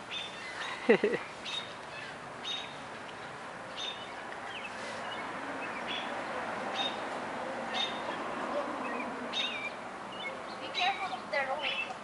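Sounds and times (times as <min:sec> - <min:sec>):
bird chirping: 0:00.1 - 0:07.1, 0:07.7 - 0:12.0.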